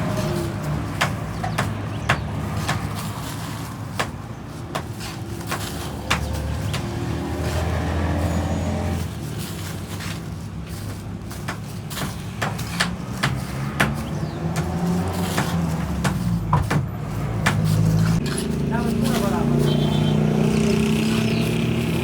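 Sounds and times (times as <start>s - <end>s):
sharp knocks and clacks: 0.2s - 7.1s, 10.8s - 19.4s.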